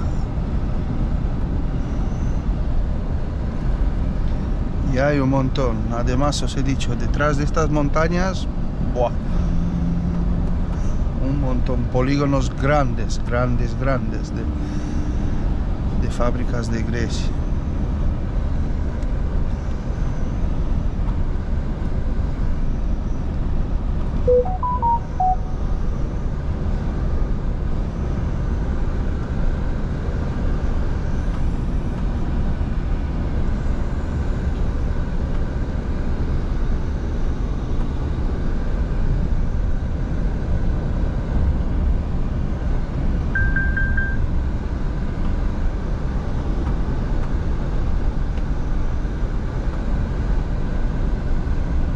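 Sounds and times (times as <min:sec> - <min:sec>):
road noise: 0:00.0 - 0:27.0, 0:38.3 - 0:49.2
truck engine drone: 0:06.5 - 0:51.8
electronic beep tones: 0:24.3 - 0:25.8, 0:43.4 - 0:44.3.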